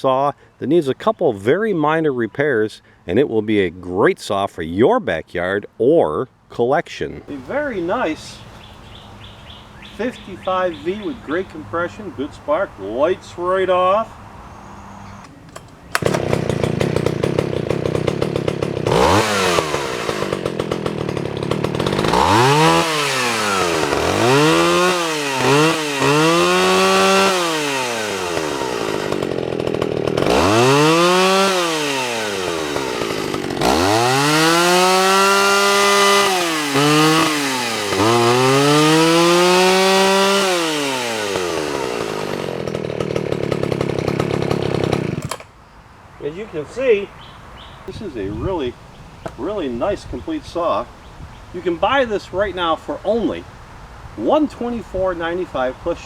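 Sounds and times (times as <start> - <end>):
chainsaw idling and revving: 7.3 - 9.6, 15.9 - 45.5.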